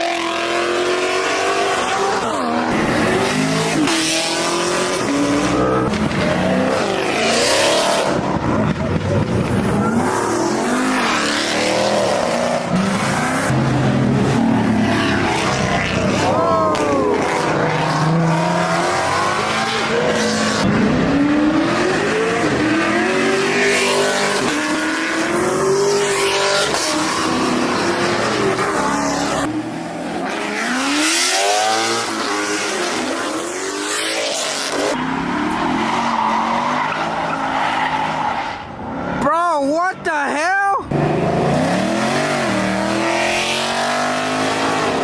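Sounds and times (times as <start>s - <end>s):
car engines revving: 0.0s - 45.0s
tire squeal: 33.9s - 39.2s.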